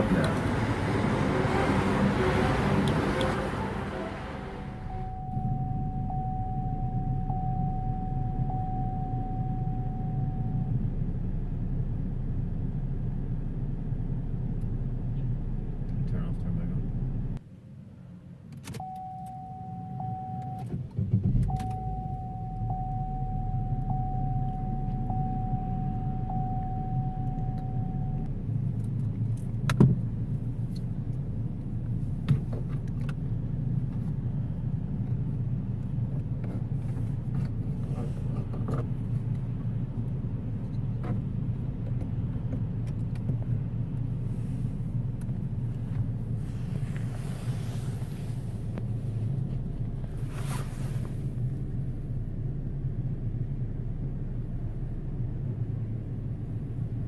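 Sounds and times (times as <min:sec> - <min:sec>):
car engine cranking and idling: 0:00.0 - 0:57.0
steady electronic tone: 0:01.2 - 0:10.7.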